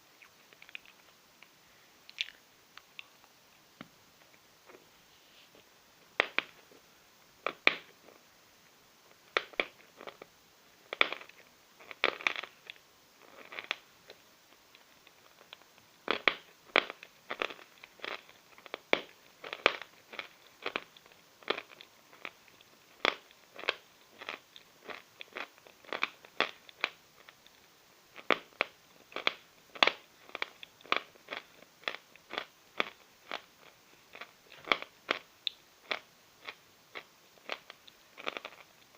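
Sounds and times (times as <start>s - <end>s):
chalk being chewed: 10.9s - 38.9s.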